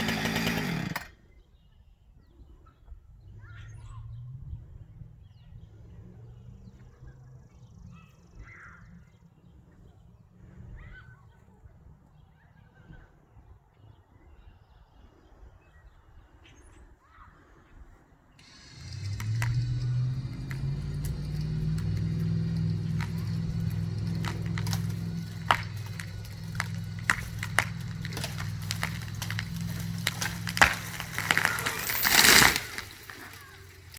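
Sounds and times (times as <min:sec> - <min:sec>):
atv engine running: 0:00.0 - 0:01.1, 0:18.4 - 0:33.9
tree crashing down: 0:00.0 - 0:01.1, 0:18.4 - 0:33.9
wood cracking and snapping: 0:00.0 - 0:01.1, 0:18.4 - 0:33.9.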